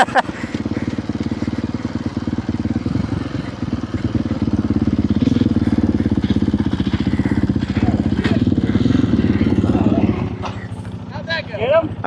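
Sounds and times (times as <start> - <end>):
dirt bike engine idling: 0.0 - 12.0.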